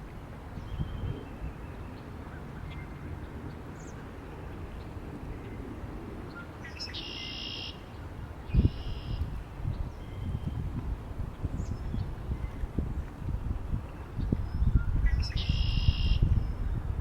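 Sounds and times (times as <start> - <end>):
wind rumbling on microphone: 0.0 - 6.9, 7.8 - 17.0.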